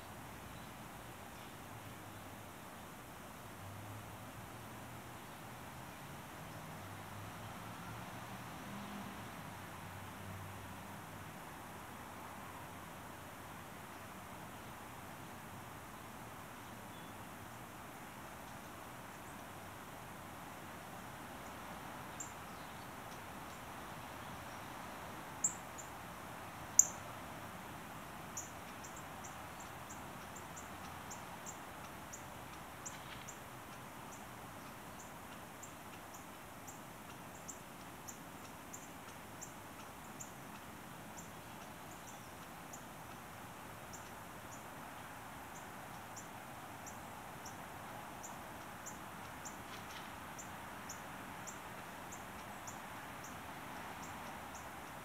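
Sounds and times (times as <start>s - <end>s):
small bird high call notes: 26.7s - 27.0s.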